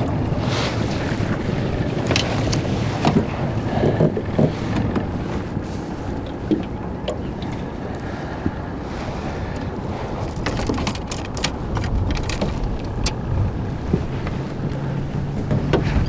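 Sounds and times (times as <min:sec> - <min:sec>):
water noise around boat: 0:00.0 - 0:16.0
wind buffeting microphone: 0:00.0 - 0:16.0
sharp clicks and knocks: 0:10.3 - 0:13.2.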